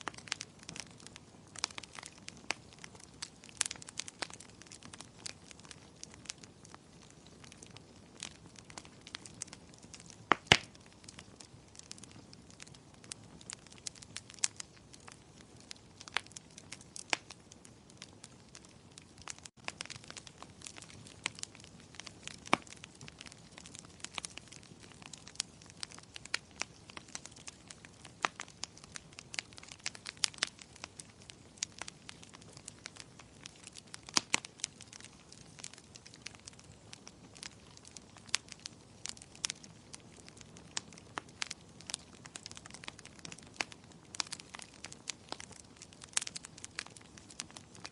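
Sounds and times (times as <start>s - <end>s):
soft hiss of burning: 0.0s - 47.9s
wood fire crackling: 0.0s - 47.9s
sharp pops and snaps: 7.4s - 47.9s.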